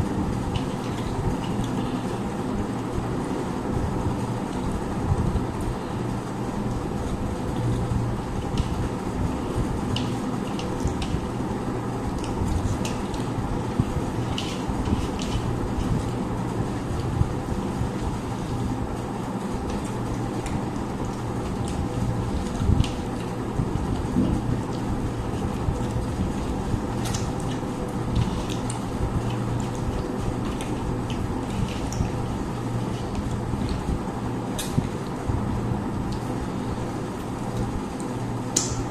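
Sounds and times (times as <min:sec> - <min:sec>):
steady low hum: 0:00.0 - 0:38.9
clicks and smacks of eating: 0:00.3 - 0:02.2, 0:07.4 - 0:11.4, 0:12.0 - 0:16.2, 0:19.5 - 0:38.9.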